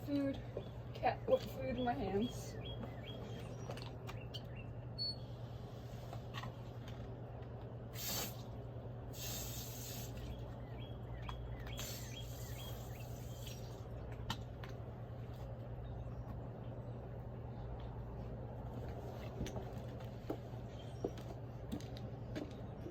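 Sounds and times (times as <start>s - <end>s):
steady low hum: 0.0s - 22.9s
small birds chirping: 0.1s - 5.2s, 9.2s - 13.8s
short hisses: 8.0s - 10.3s, 11.8s - 13.6s.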